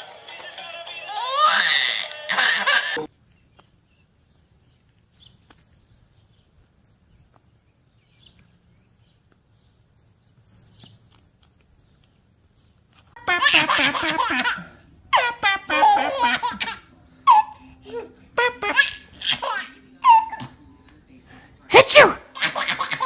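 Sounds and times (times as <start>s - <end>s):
faint outdoor ambience: 0.0s - 23.0s
soft bird chirps: 3.1s - 12.9s.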